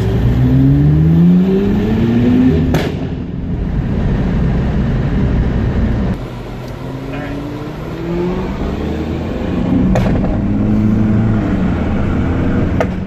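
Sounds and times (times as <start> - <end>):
car engine accelerating: 0.0 - 13.0
exhaust crack: 9.3 - 11.9.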